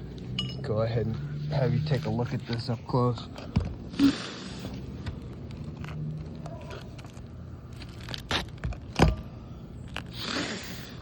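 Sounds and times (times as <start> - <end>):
shingles rustling and scraping: 4.6 - 10.2
shingles cracking: 5.0 - 10.3.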